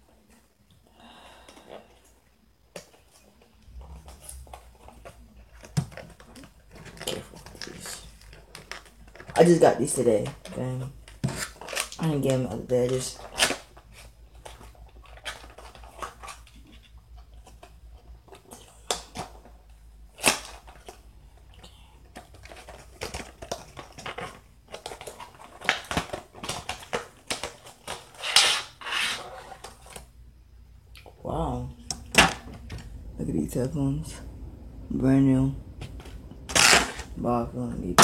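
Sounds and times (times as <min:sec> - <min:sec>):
cardboard and plastic crinkling: 0:02.8 - 0:30.2.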